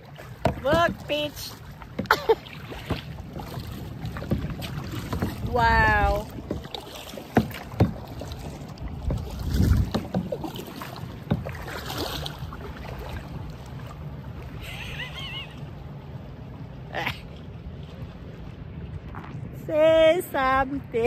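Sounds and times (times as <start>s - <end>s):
paddle knocking against boat: 0.0s - 13.4s
paddle strokes splashing: 0.0s - 21.0s
wind on microphone: 2.8s - 6.9s, 8.5s - 10.6s.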